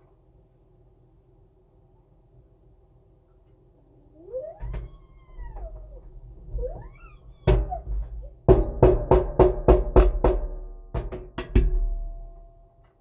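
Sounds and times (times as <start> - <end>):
drum hits: 8.5 - 12.6.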